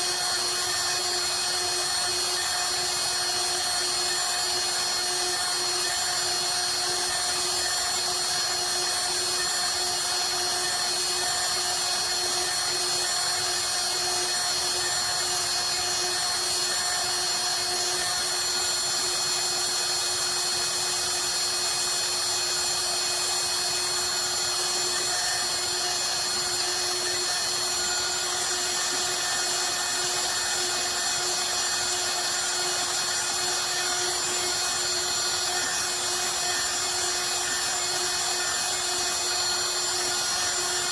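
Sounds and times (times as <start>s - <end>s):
router spindle humming: 0.0s - 40.9s.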